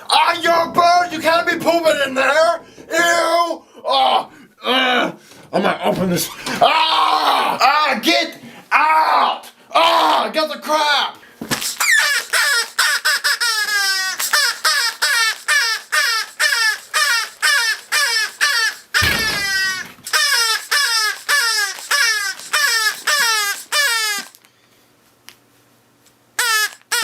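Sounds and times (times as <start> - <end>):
falling squawking cries: 11.7 - 24.4.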